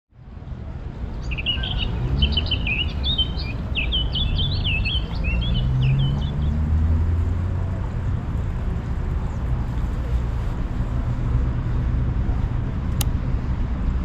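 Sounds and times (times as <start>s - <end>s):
small bird chirping and warbling: 1.1s - 6.5s.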